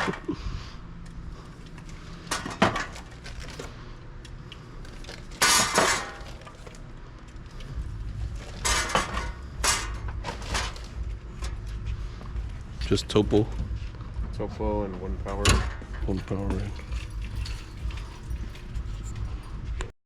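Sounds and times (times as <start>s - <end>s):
glass bottles clinking: 16.3s - 19.7s.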